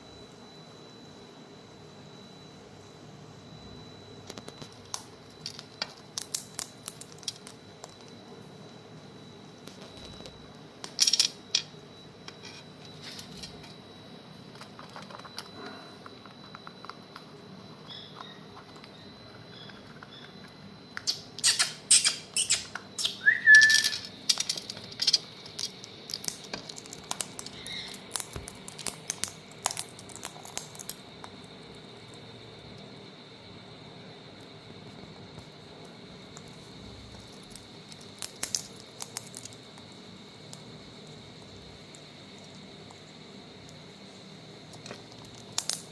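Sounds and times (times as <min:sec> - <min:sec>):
beaks cracking food: 0:06.1 - 0:08.0, 0:21.0 - 0:31.4, 0:37.2 - 0:40.7, 0:44.8 - 0:45.9
bird rising chirp: 0:21.1 - 0:24.2.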